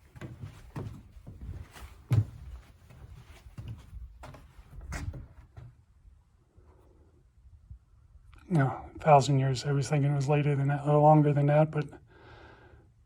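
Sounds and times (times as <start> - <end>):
footsteps dull thumps: 0.0 - 5.8.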